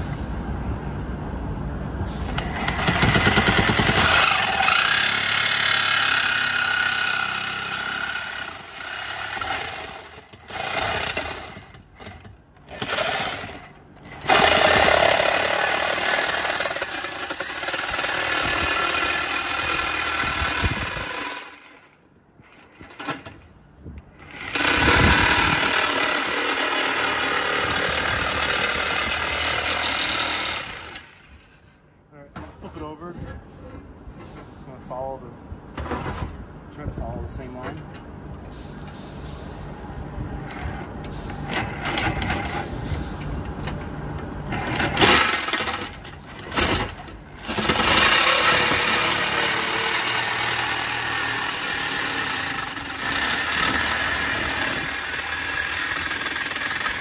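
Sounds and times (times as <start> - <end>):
reciprocating saw cutting steel pipe: 2.7 - 11.6, 14.2 - 21.8, 24.3 - 31.1, 47.5 - 57.0.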